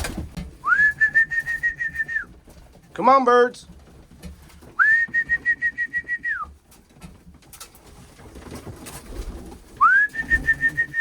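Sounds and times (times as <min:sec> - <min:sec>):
pigeons cooing: 0:09.1 - 0:11.0.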